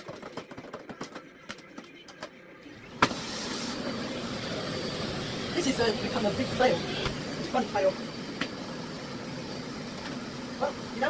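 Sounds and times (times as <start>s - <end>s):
vacuum cleaner motor rushing air: 2.7s - 11.0s.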